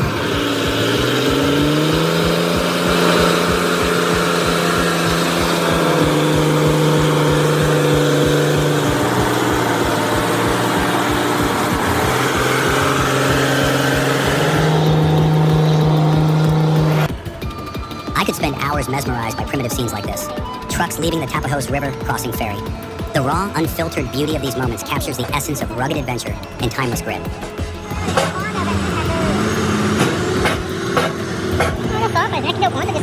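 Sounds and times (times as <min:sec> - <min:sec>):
truck diesel engine under load: 0:00.0 - 0:33.0.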